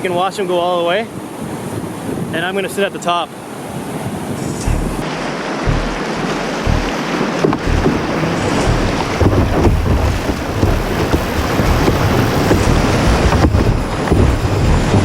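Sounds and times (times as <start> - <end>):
wind buffeting microphone: 1.0 - 2.4, 3.6 - 15.0
river rushing through rapids: 4.3 - 15.0.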